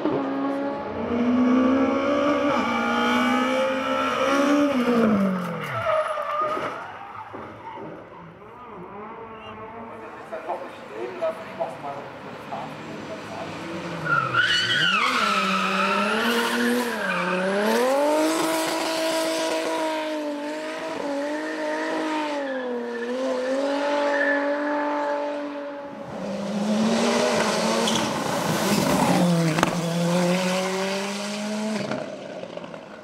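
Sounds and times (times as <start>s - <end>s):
race car engine revving: 0.0s - 5.6s, 12.4s - 32.7s.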